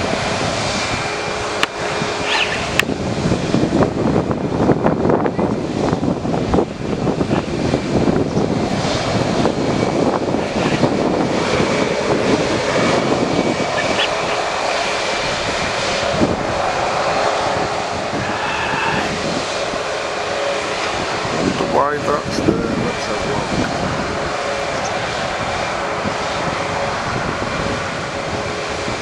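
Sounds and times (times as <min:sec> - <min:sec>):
jet engines rumbling: 0:00.0 - 0:29.0
steady engine whine: 0:00.0 - 0:29.0.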